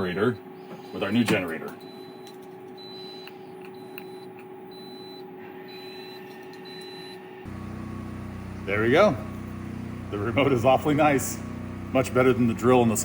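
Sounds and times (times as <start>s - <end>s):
steady hum: 0.0s - 13.0s
generator engine running: 4.8s - 13.0s.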